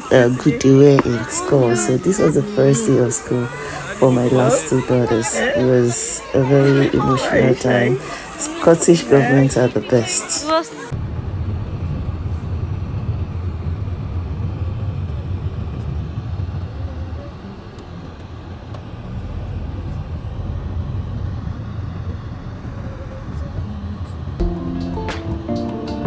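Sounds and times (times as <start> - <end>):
low rumble of vehicle noise: 0.0 - 25.6
music: 24.4 - 26.0.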